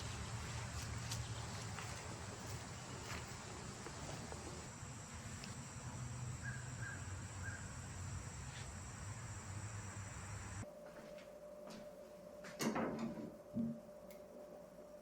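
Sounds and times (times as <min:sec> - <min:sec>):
insects droning: 0:00.0 - 0:10.6
short bird calls: 0:06.4 - 0:07.7.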